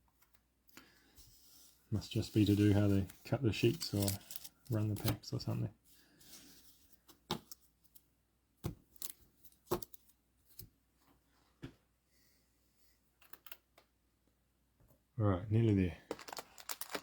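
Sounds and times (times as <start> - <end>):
cards clicking and tapping on table: 9.7 - 10.0.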